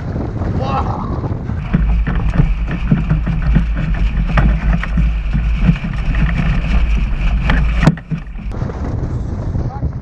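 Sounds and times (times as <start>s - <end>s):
wind buffeting microphone: 0.0s - 10.0s
water splashing against hull: 0.8s - 8.7s.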